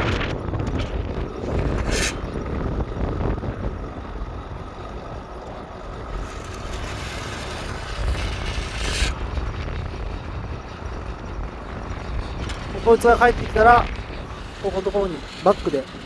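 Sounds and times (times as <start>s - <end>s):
farm machinery engine rumbling: 0.0s - 16.0s
brief hiss: 1.7s - 2.3s.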